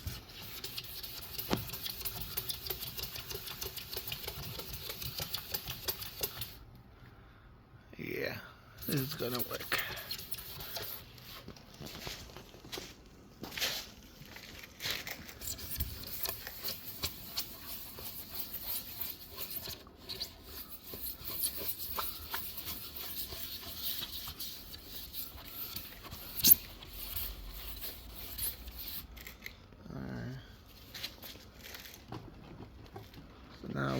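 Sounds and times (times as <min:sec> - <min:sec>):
abrasive pad scrubbing plastic: 0:00.0 - 0:06.6, 0:08.8 - 0:11.5, 0:15.3 - 0:29.2.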